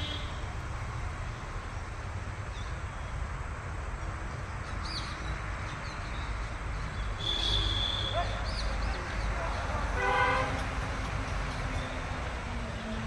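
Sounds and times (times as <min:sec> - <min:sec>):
birds chirping: 0:04.2 - 0:10.3.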